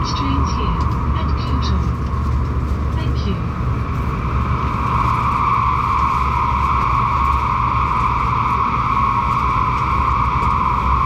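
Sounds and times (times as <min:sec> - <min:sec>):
train rumbling at speed: 0:00.0 - 0:11.0.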